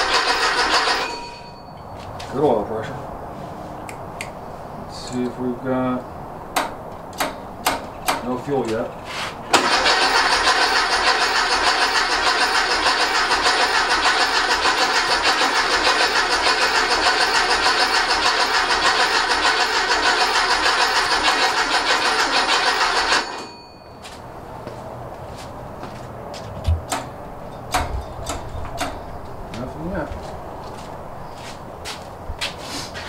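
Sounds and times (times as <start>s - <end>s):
engine cranking on starter: 0.0s - 1.4s, 9.5s - 23.8s.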